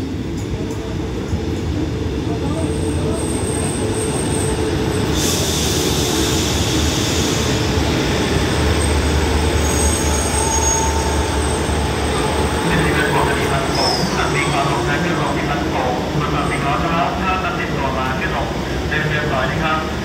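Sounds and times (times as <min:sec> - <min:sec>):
train rumbling: 0:00.0 - 0:20.0
hiss: 0:05.1 - 0:07.7
faint brake squeal: 0:09.6 - 0:11.7, 0:13.7 - 0:14.2.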